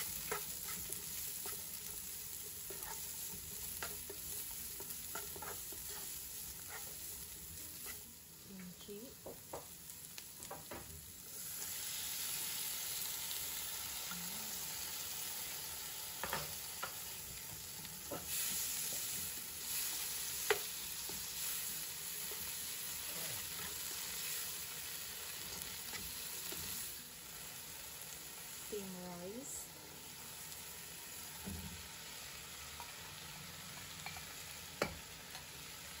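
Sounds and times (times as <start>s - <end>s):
spatula scraping pan: 0.0s - 8.1s
food sizzling in pan: 0.0s - 36.0s.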